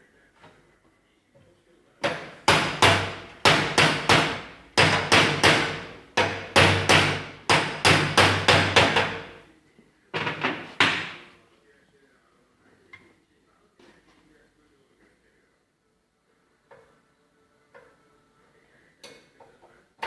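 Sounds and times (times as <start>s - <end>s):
hammer striking metal: 2.0s - 9.4s, 10.4s - 11.3s.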